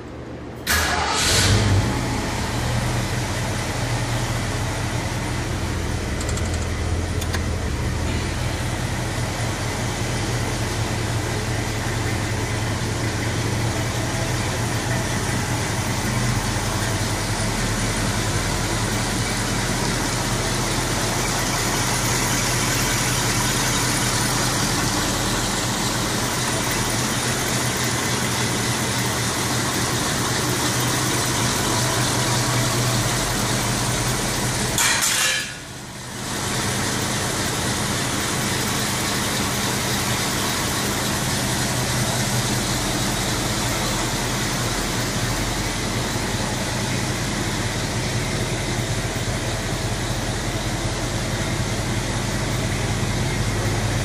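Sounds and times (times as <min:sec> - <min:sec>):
car engine starting and idling: 0:00.1 - 0:54.0.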